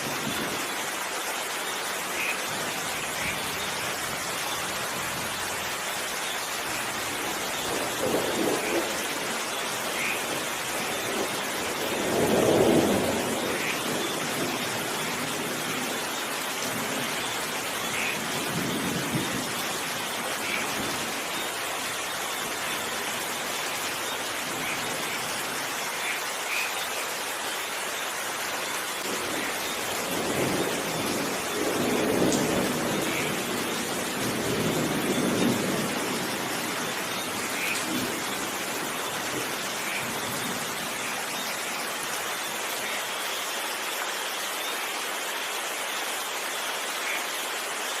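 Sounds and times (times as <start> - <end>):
steady rain: 0.0 - 48.0
thunder rumbling: 6.7 - 21.4, 29.0 - 41.4.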